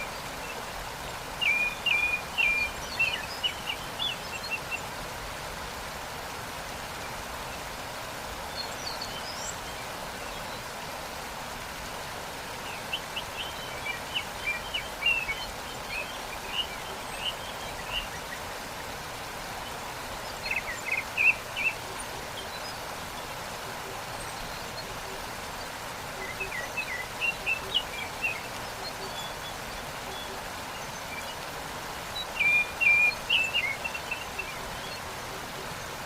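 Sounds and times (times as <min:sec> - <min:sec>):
waterfall rushing: 0:00.0 - 0:36.0
small birds chirping: 0:11.8 - 0:36.0.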